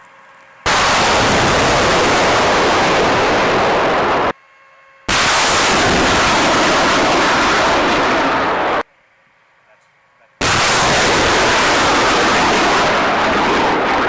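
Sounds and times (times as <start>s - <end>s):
rocket launch blast roaring: 0.7s - 4.3s, 5.1s - 8.8s, 10.4s - 14.0s.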